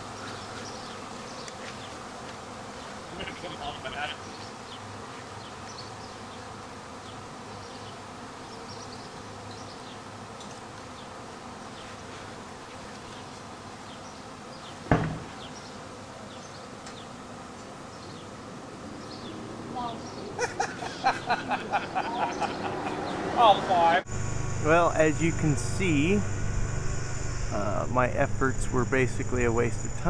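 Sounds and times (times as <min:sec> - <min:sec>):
bee swarm buzzing: 0:00.0 - 0:30.0
sharp knock: 0:14.9 - 0:15.3.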